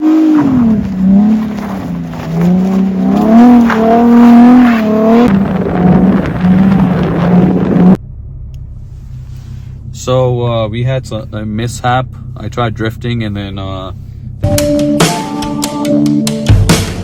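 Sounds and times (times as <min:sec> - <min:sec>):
car engine revving hard: 0:00.0 - 0:08.0.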